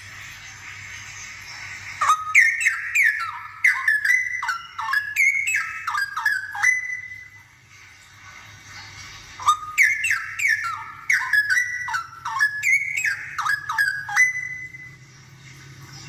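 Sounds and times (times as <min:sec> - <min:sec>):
bird whistled song: 0:02.0 - 0:07.6, 0:09.4 - 0:15.2.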